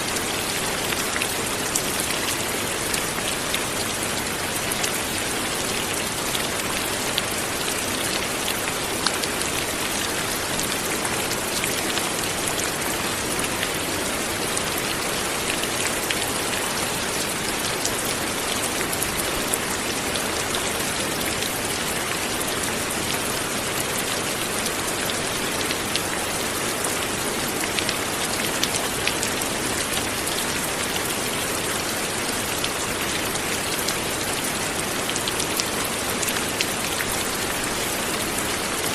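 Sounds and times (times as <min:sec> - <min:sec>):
light rain falling: 0:00.0 - 0:38.9.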